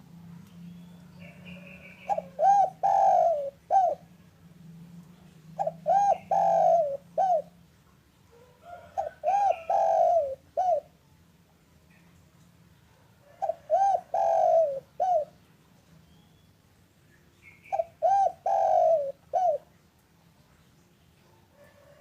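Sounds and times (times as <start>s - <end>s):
dove cooing: 1.0s - 4.2s, 5.5s - 7.6s, 8.3s - 11.0s, 13.2s - 15.4s, 17.6s - 19.7s.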